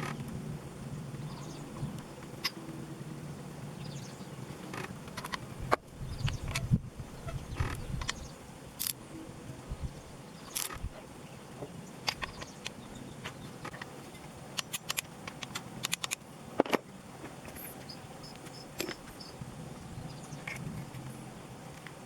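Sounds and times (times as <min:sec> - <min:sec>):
low steady hum: 0:00.0 - 0:22.0
hand tools clicking and tapping: 0:14.6 - 0:17.4.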